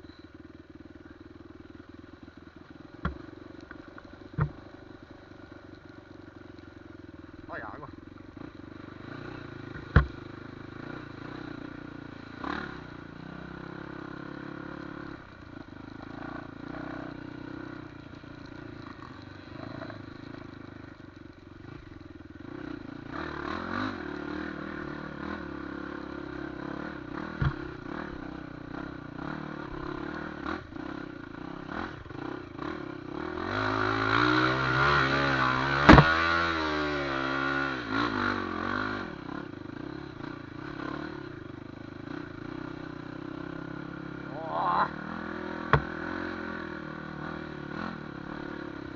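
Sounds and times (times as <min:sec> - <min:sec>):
motorcycle engine revving: 0:00.0 - 0:48.9
sharp knocks: 0:09.8 - 0:10.2, 0:35.8 - 0:36.3, 0:45.7 - 0:45.9.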